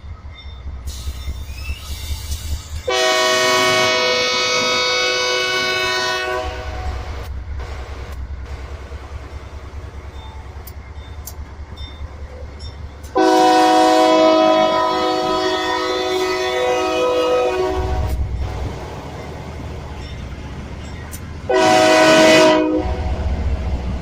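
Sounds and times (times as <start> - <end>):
locomotive engine rumble: 0.0 - 24.0
rail noise: 0.0 - 24.0
train air horn blast: 2.9 - 7.2, 13.2 - 18.2, 21.5 - 23.2.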